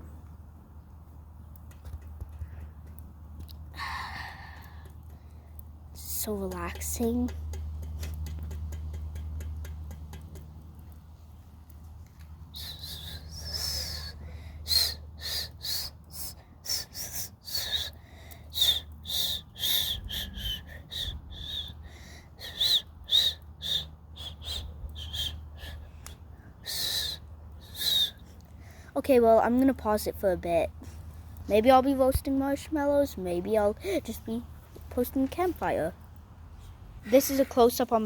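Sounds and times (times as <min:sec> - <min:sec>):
campfire crackles: 0:00.0 - 0:38.0
high-pitched hissing whistles: 0:12.5 - 0:28.3.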